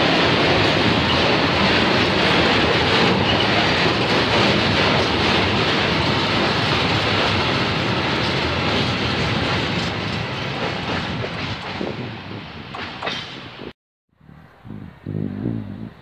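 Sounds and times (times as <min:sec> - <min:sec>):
freight train wheels rumbling: 0:00.0 - 0:13.7.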